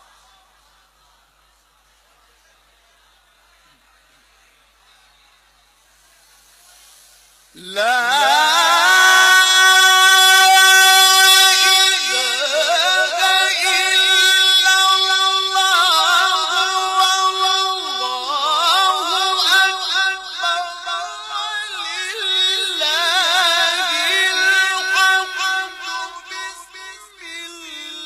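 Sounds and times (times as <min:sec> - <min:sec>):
person singing ornamented melody: 0:07.6 - 0:28.0.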